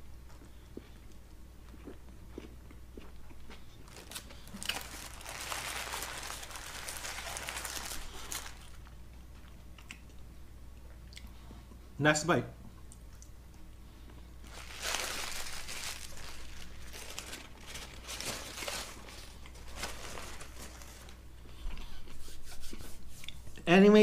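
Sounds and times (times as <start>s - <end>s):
person chewing a burger: 0.2s - 11.9s.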